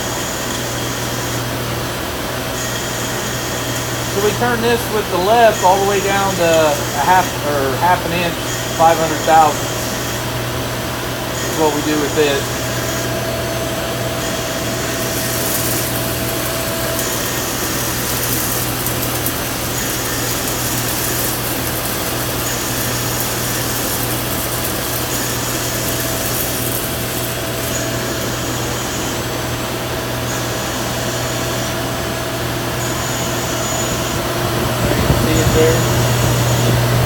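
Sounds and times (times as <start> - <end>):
lathe spindle hum: 0.2 - 37.0
high cutting hiss: 14.2 - 29.2.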